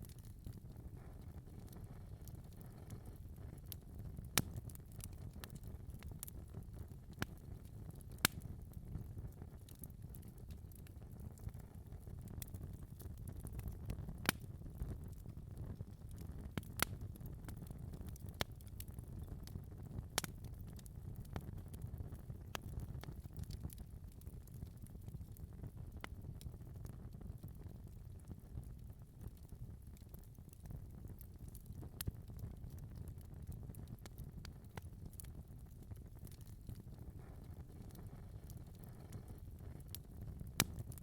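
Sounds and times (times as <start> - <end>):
wood fire crackling: 0.0 - 41.0
sharp pops of fire: 16.2 - 17.1, 36.2 - 41.0.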